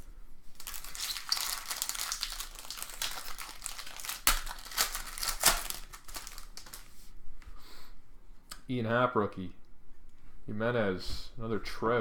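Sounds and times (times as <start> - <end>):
packaging crinkling: 0.0 - 7.0.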